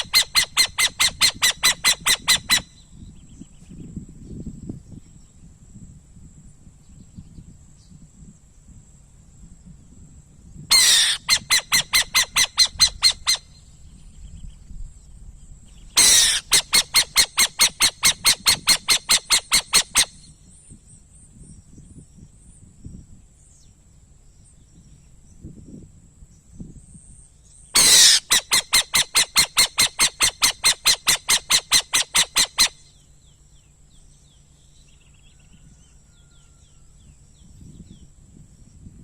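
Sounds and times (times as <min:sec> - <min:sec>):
owl calling: 0:00.0 - 0:03.0, 0:10.7 - 0:13.7, 0:15.9 - 0:20.3, 0:27.8 - 0:33.0.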